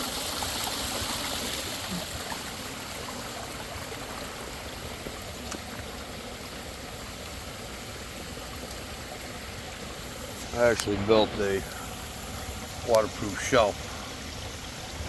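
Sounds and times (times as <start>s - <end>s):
water pouring and splashing: 0.0s - 15.0s
drip-like ticks: 4.0s - 11.0s, 11.7s - 14.1s.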